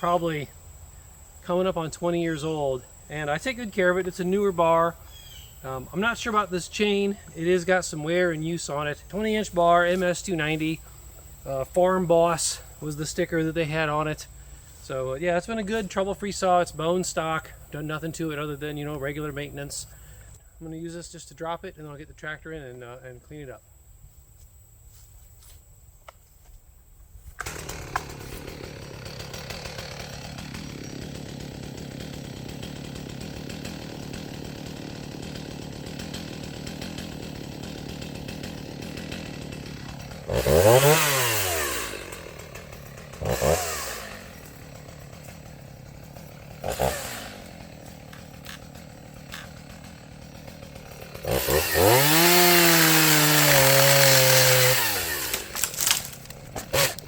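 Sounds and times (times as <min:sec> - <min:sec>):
chainsaw idling and revving: 0:00.0 - 0:20.4, 0:27.4 - 0:57.0
chainsaw cutting into trunk: 0:27.3 - 0:57.0.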